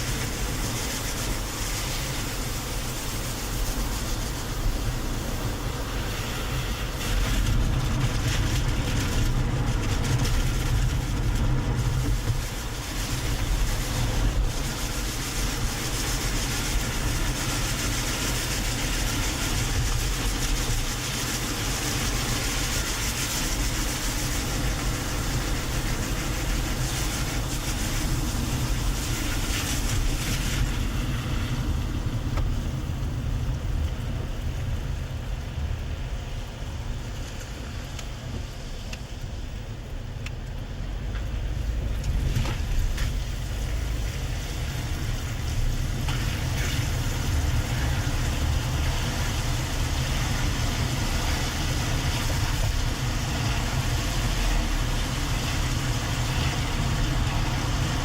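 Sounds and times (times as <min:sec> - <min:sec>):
high hiss: 0:00.0 - 0:07.3
road and engine rumble: 0:00.0 - 0:58.0.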